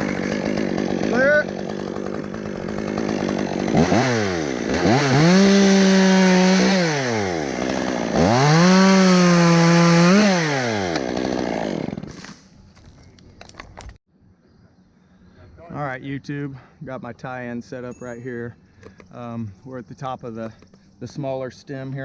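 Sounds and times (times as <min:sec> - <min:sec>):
chainsaw idling and revving: 0:00.0 - 0:12.4
chainsaw cutting wood: 0:00.0 - 0:14.0.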